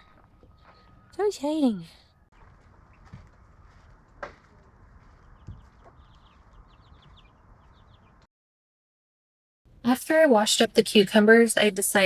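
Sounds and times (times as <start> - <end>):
chickens clucking and chirping: 2.3 - 8.3.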